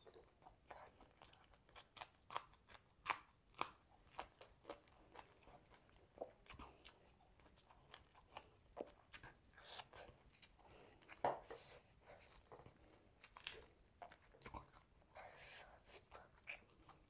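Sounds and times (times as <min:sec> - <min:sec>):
chewing crunchy food: 0:00.0 - 0:17.0.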